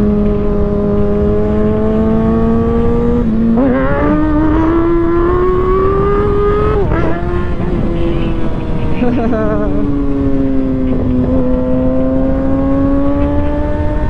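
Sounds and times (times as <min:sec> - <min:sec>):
gear change: 0:00.0 - 0:14.0
wind noise: 0:00.0 - 0:14.0.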